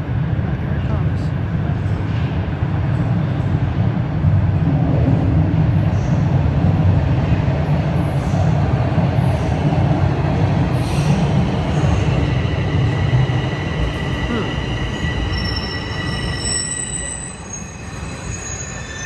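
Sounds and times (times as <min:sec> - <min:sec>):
subway train rumbling on rails: 0:00.0 - 0:19.0
train brakes squealing: 0:10.7 - 0:19.0.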